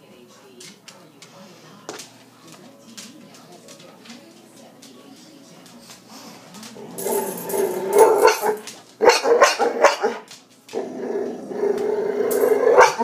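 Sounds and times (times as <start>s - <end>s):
dog growling: 6.6s - 8.7s, 9.6s - 13.0s
dog barking: 7.9s - 10.3s, 12.6s - 13.0s.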